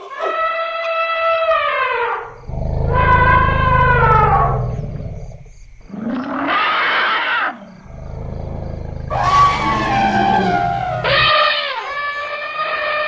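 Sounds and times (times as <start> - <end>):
elephant deep low rumble: 2.3 - 5.8, 7.8 - 12.0
elephant calls: 9.1 - 12.0.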